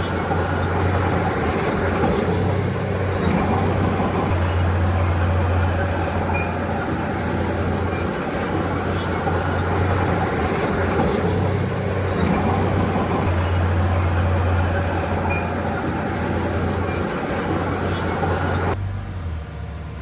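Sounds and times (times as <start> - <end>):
faint high squeaks: 0.0 - 18.8
bulldozer engine drone: 0.0 - 20.0.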